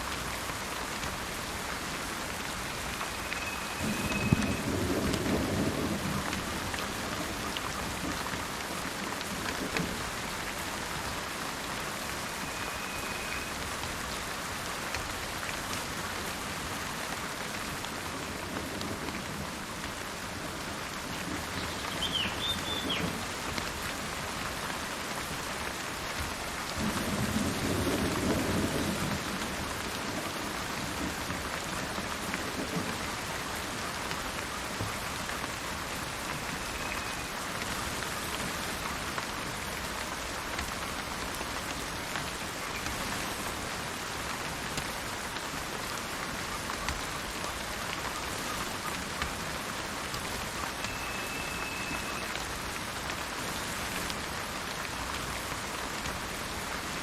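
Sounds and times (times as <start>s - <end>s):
rain falling in forest: 0.0s - 57.0s
thunder rumbling: 3.6s - 8.2s
bird chirp: 21.6s - 23.1s.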